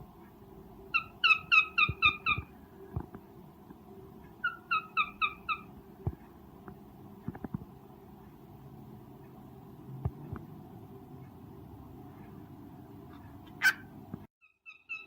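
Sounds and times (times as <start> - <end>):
cockatiel chirping: 0.9 - 2.5, 4.4 - 5.7, 13.6 - 15.0.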